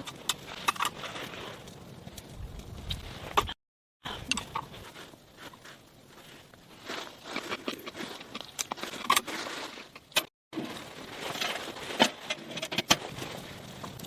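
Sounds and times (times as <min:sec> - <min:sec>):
small hard objects clinking: 0:04.1 - 0:14.0.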